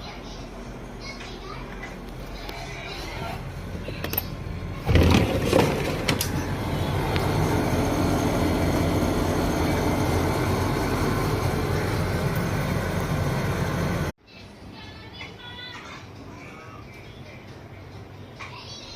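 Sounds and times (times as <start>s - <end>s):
machine running with rushing noise: 4.8s - 14.1s.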